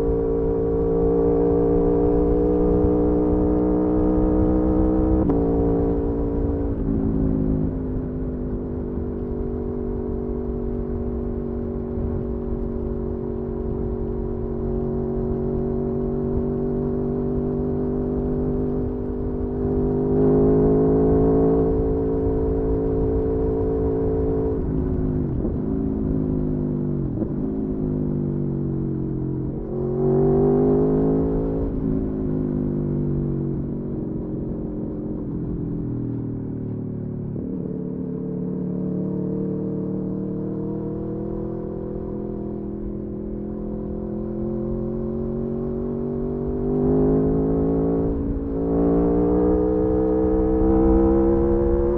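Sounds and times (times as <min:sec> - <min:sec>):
motorcycle engine cruising: 0:00.0 - 0:51.9
wind rumble: 0:21.6 - 0:36.4.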